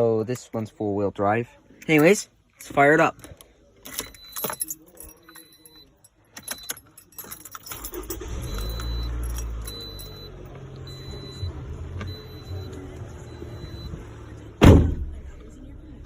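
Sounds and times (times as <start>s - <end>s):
keys jangling in ignition: 1.8s - 11.5s
car engine starting and idling: 7.4s - 16.0s.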